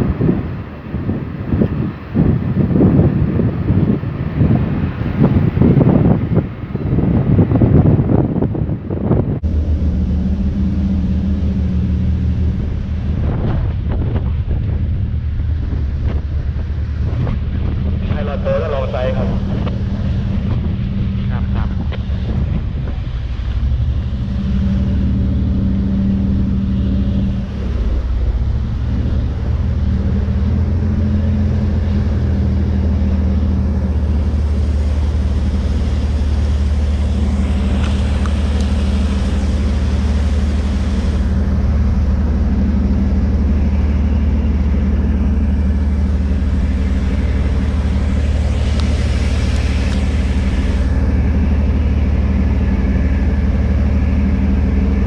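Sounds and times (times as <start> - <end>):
ship engine droning: 0.0 - 55.0
rushing hiss: 34.0 - 42.6, 45.4 - 52.7.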